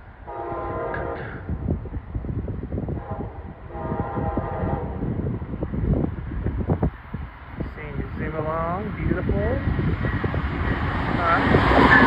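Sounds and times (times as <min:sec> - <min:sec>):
steady low rumble: 0:00.0 - 0:12.0
train horn blasts: 0:00.2 - 0:01.6, 0:03.0 - 0:05.1.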